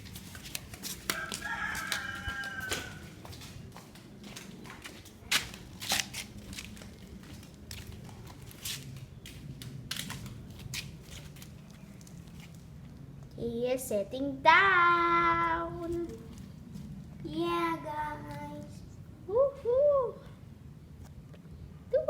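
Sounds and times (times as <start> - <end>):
rooster crowing: 1.1 - 3.4.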